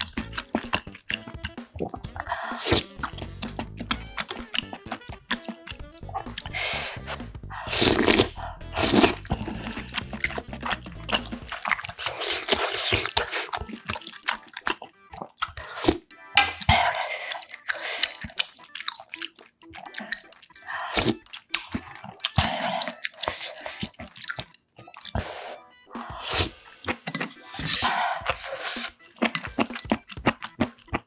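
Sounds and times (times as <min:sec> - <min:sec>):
person slurping noodles: 0:00.0 - 0:04.4, 0:05.4 - 0:30.8
person chewing: 0:00.0 - 0:31.0.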